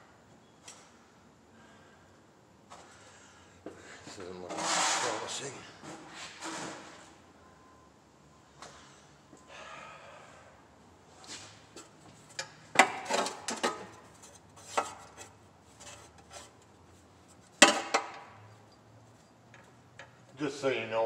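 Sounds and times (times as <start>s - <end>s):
soft metal scraping: 14.0s - 17.5s.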